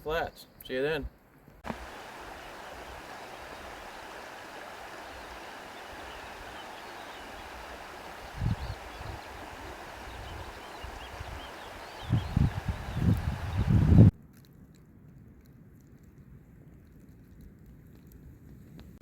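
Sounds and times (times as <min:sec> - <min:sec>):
river water rushing: 0:01.6 - 0:14.1
faint high chirps: 0:01.7 - 0:14.1.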